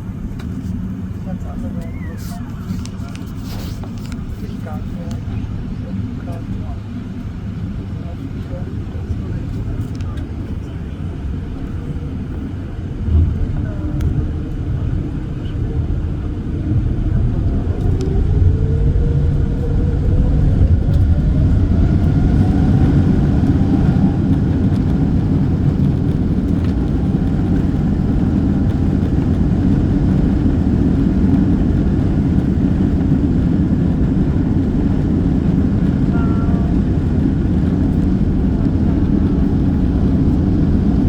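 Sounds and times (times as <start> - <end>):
jet engines roaring: 0.0 - 41.0
engine whine rising in pitch: 12.0 - 41.0.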